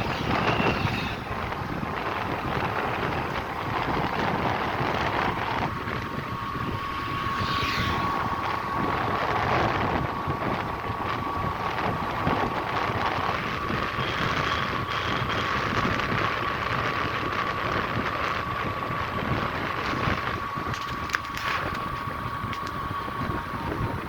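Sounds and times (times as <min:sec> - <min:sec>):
road rumble: 0:00.0 - 0:24.0
thin steady whine: 0:00.0 - 0:24.0
wind buffeting microphone: 0:00.0 - 0:24.0.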